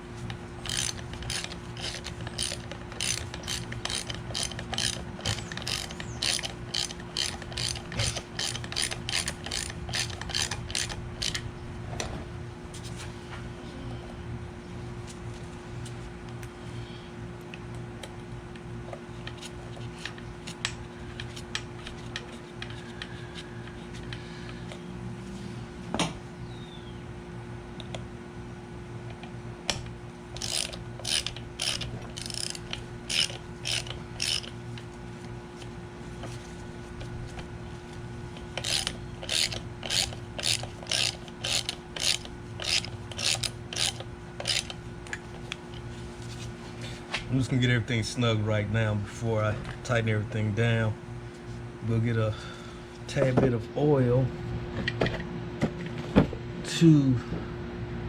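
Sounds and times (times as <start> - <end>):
steady low hum: 0.0 - 58.0
ratchet wrench clicking: 0.6 - 11.4, 30.4 - 34.6, 38.6 - 44.8.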